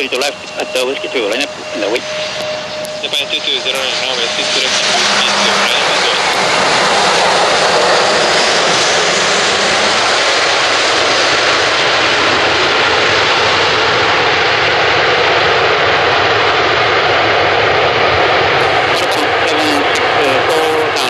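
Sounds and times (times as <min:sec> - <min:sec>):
jet engines running: 0:00.0 - 0:21.0.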